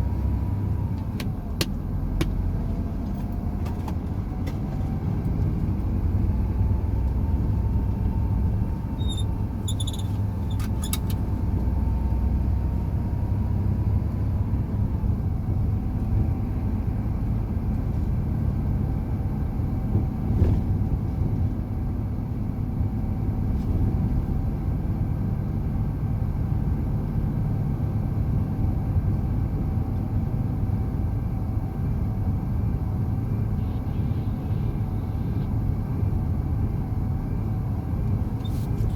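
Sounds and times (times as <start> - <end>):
truck engine and road rumble: 0.0 - 38.9
faint whine: 33.2 - 35.9.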